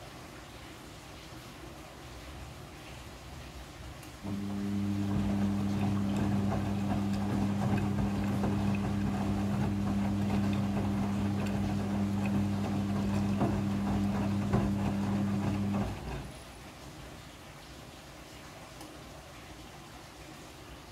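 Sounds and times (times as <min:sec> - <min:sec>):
washing machine humming: 0:03.9 - 0:16.9.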